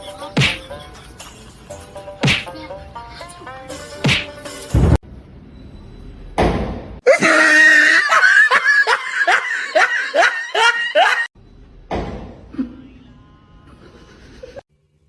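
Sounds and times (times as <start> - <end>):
person laughing: 7.1 - 11.3, 12.5 - 13.0, 13.7 - 14.6.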